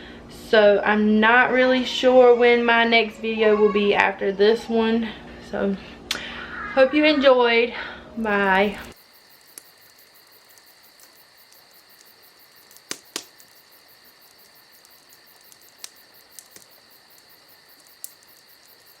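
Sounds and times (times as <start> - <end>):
sharp clicks: 8.9 - 19.0.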